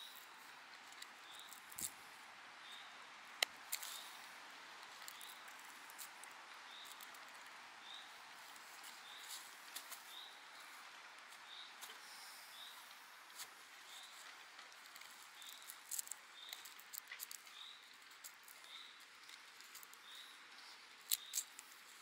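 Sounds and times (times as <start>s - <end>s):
bird chirping: 1.2s - 1.9s, 2.6s - 3.1s, 5.0s - 6.0s, 6.6s - 13.0s, 13.8s - 22.0s
knife shaving a wooden stick: 21.0s - 22.0s.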